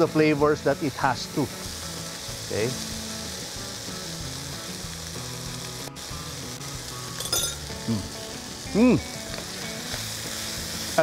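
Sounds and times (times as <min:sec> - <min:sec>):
meat and peppers sizzling in wok: 0:00.0 - 0:11.0
soft background music: 0:00.0 - 0:11.0
clink: 0:07.2 - 0:07.6
person humming: 0:07.8 - 0:08.2.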